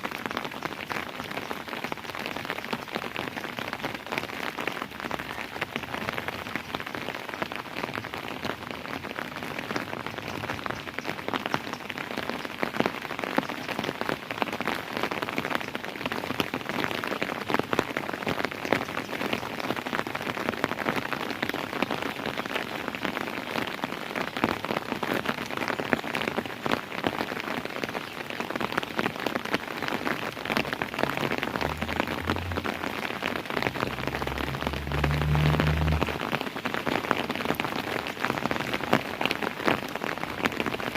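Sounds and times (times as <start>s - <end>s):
steady rain falling: 0.0s - 40.9s
low rumble: 30.7s - 36.4s.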